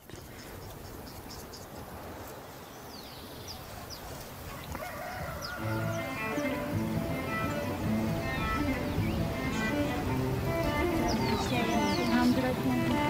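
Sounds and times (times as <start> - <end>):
steady background hiss: 0.0 - 13.0
high bird chirps: 5.4 - 12.6
music: 5.6 - 13.0.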